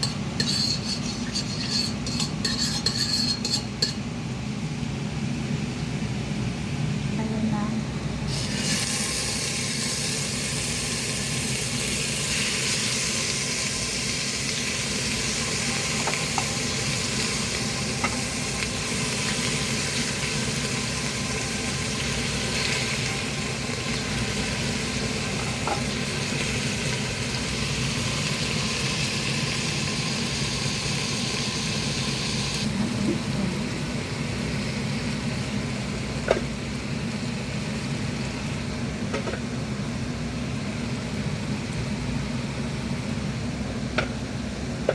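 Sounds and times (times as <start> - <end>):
food sizzling in a pot: 0.0 - 4.0, 8.3 - 38.7.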